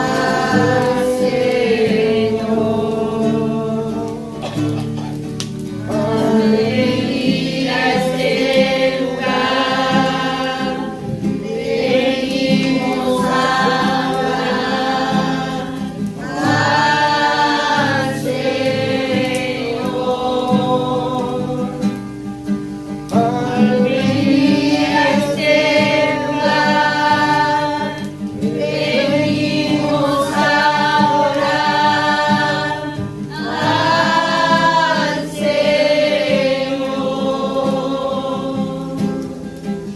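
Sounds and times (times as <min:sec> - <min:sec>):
instrumental backing: 0:00.0 - 0:20.3
voices singing together: 0:00.0 - 0:39.9.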